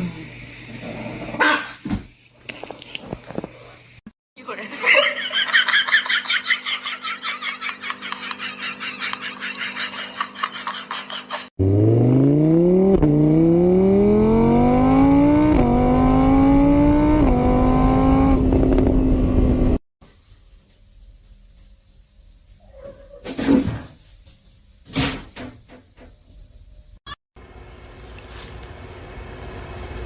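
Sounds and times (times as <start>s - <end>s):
car engine accelerating: 11.6s - 19.8s.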